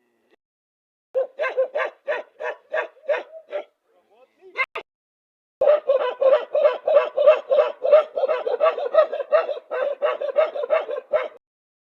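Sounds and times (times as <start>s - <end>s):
dog barking rapidly: 1.2s - 3.8s, 5.6s - 11.4s.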